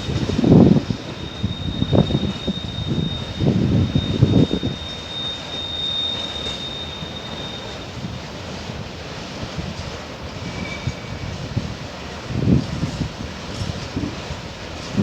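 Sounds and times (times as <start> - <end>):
high wheel squeal: 0.0 - 8.4, 10.4 - 11.6
freight train wheels clattering: 0.0 - 15.0.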